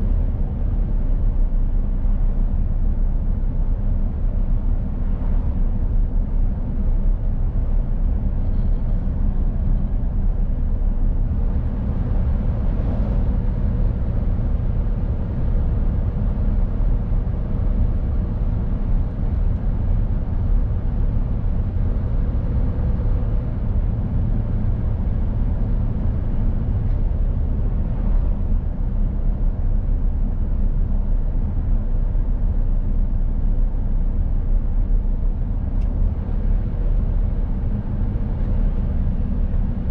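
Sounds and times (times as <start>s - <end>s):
lorry engine and road rumble: 0.0s - 39.9s.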